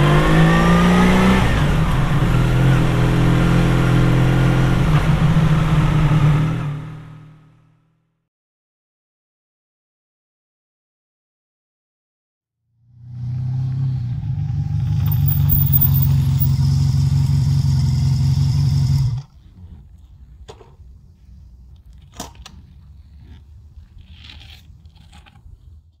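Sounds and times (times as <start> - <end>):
motorcycle engine droning: 12.8 - 19.8
tyres on gravel: 15.0 - 16.5.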